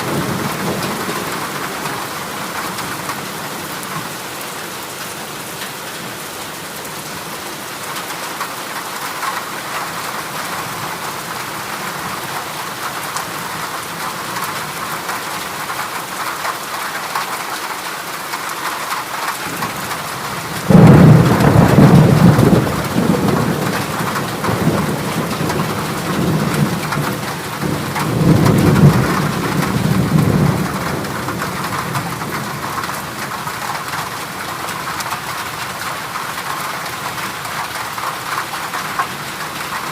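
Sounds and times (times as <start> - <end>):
heavy rain on a metal roof: 0.0 - 39.9
thunder rumbling: 19.5 - 34.5.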